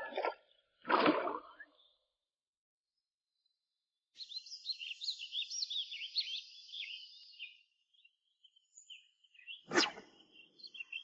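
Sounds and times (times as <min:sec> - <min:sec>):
songbird twittering: 0:04.2 - 0:11.0.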